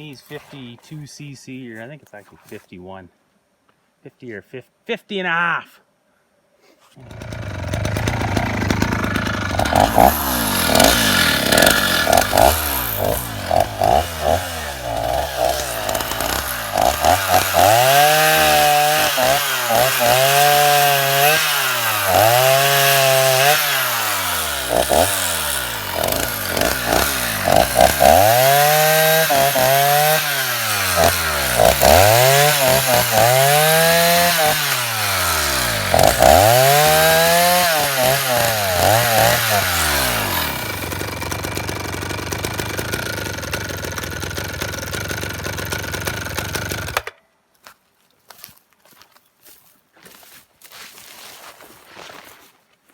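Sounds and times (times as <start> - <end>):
chainsaw engine revving: 7.0 - 47.1.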